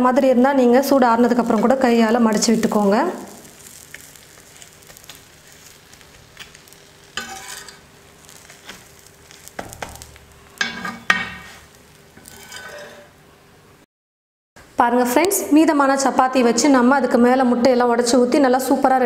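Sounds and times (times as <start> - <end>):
flatbread sizzling on a hot pan: 0.6 - 13.2
steel spatula scraping a pan: 6.6 - 9.5, 10.5 - 13.1.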